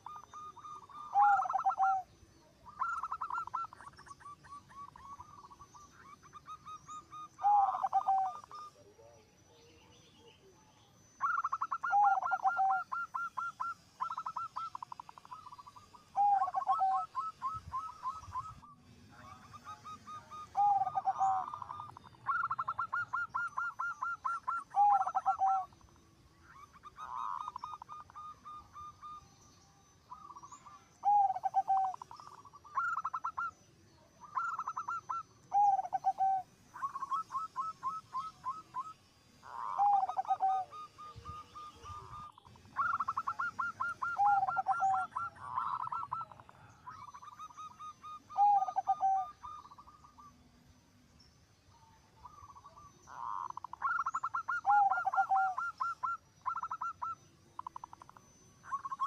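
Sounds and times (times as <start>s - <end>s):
doves cooing: 0.0s - 29.3s, 30.1s - 50.4s, 52.1s - 59.0s.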